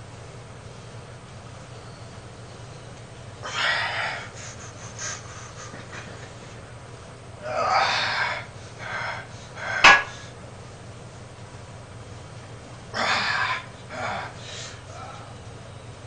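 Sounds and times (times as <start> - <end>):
man breathing hard: 3.4 - 6.0, 7.4 - 10.4, 13.0 - 15.4
sharp knock: 9.8 - 10.2.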